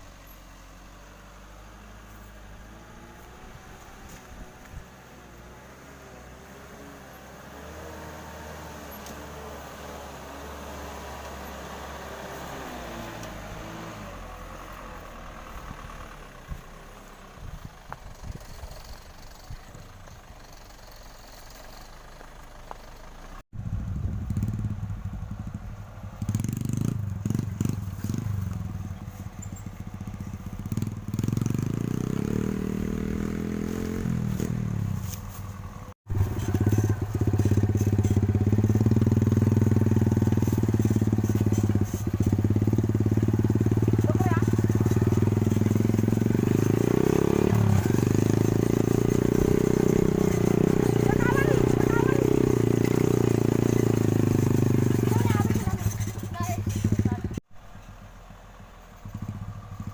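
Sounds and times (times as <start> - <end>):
truck diesel engine running: 10.2 - 26.5, 34.6 - 59.9
engine clattering: 14.2 - 59.9.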